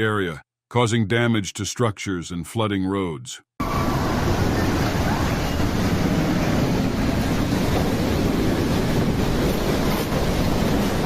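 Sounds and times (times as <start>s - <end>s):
storm wind buffeting microphone: 3.6s - 11.0s.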